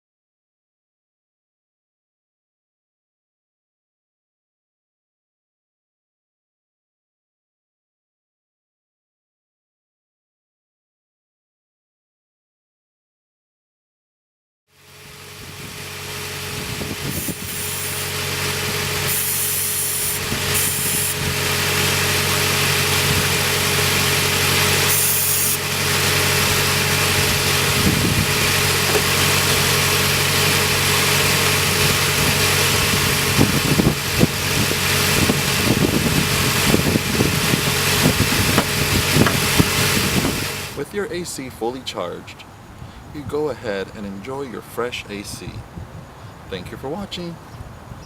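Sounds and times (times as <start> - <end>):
car engine idling: 14.8 - 41.9
high hiss bursts: 17.2 - 18.2, 19.1 - 21.2, 24.9 - 25.6.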